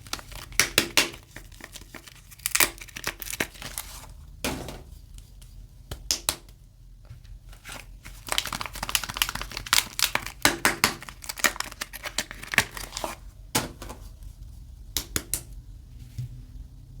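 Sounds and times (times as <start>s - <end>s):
packaging crinkling and tearing: 0.0s - 4.1s, 7.6s - 13.3s.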